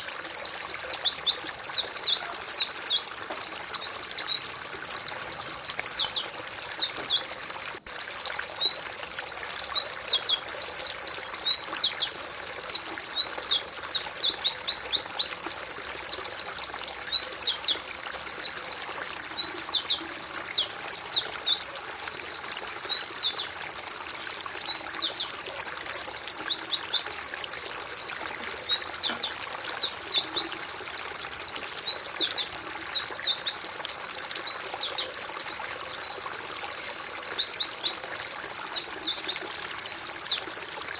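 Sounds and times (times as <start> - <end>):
flock of birds chirping: 0.0 - 40.9.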